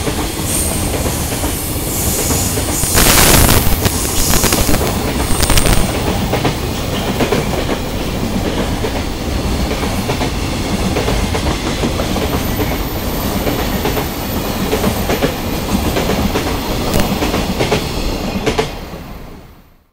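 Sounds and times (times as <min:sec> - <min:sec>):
freight train rolling past: 0:00.0 - 0:19.5.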